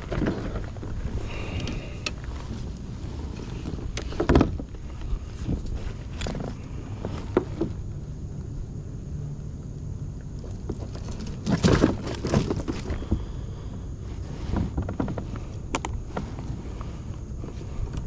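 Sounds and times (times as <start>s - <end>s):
scraping: 0.0s - 7.9s
rustling: 0.0s - 8.7s, 10.2s - 18.0s
low steady rumble: 0.0s - 18.0s
noisy clatter: 10.1s - 17.0s.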